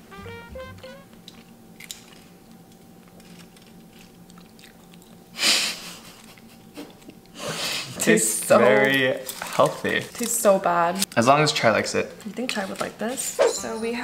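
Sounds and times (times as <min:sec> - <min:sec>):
music passage: 0:00.0 - 0:01.4
people chewing cupcake: 0:01.3 - 0:08.0.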